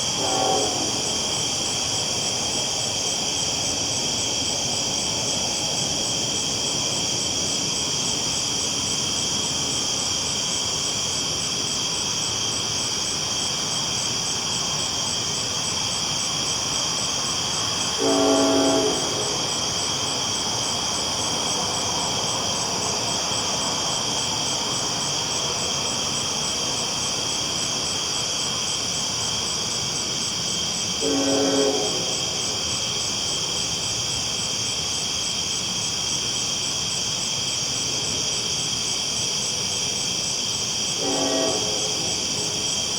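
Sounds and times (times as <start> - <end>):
train rumbling on tracks: 0.0 - 34.9, 39.2 - 42.9
night insects chorus: 0.0 - 42.9
train horn blasts: 0.1 - 1.3, 18.0 - 19.5, 31.0 - 32.5, 41.0 - 42.6.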